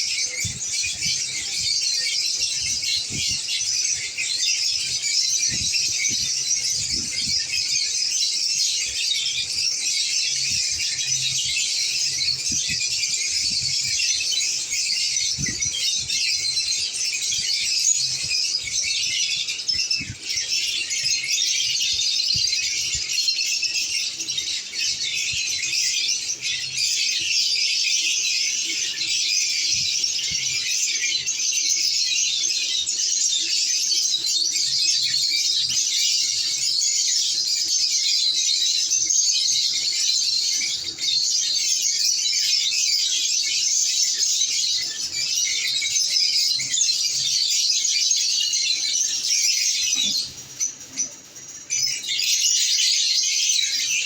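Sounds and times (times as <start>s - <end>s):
lovebirds chirping and squawking: 0.0s - 54.0s.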